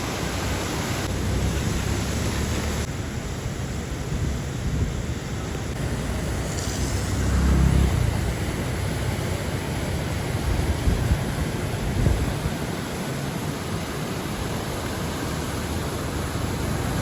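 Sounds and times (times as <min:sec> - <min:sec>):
traffic rumble: 0:00.0 - 0:17.0
vehicle passing: 0:05.8 - 0:09.7.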